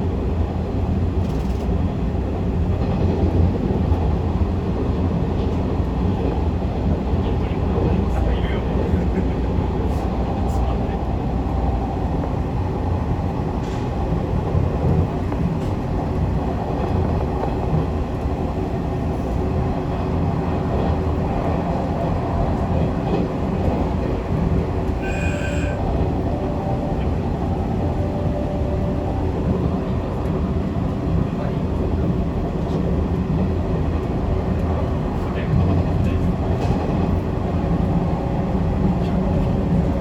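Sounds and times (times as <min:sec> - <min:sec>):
train wheels rumbling on rail: 0:00.0 - 0:40.0
brief high-pitched tone: 0:25.0 - 0:29.6.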